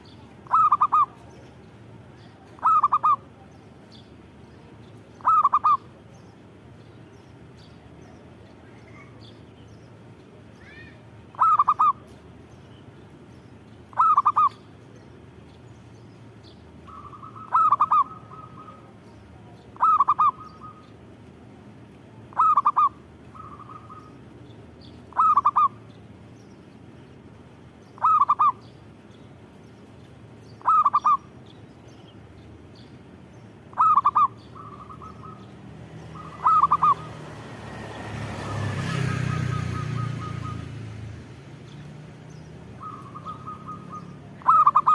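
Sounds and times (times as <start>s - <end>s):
dove cooing: 0.4s - 1.3s, 2.3s - 3.4s, 5.2s - 6.0s, 11.3s - 12.1s, 13.9s - 14.6s, 16.9s - 20.9s, 22.3s - 24.2s, 25.1s - 25.8s, 28.0s - 28.6s, 30.6s - 31.3s, 33.7s - 37.3s, 38.5s - 40.8s, 42.8s - 44.9s.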